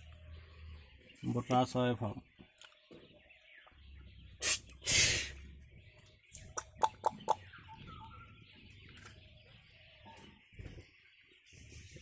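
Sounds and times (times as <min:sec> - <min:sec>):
quail calling: 0:06.3 - 0:08.5.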